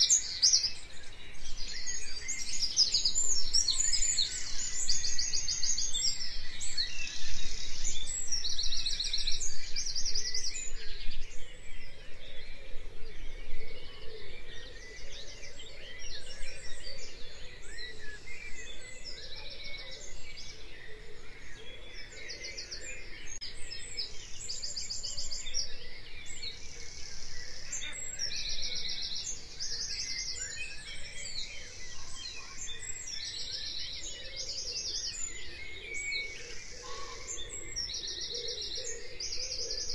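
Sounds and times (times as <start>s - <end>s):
birds singing trills: 0.0s - 39.9s.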